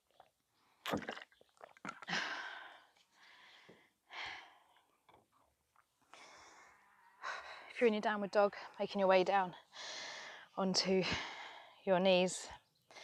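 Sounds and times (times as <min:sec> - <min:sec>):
woman breathing heavily: 0:09.7 - 0:11.8.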